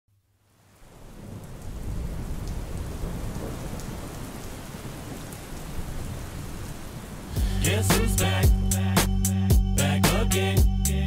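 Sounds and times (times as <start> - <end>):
faint ticks of raindrops: 0.1 - 7.5
steady rain: 0.1 - 8.9.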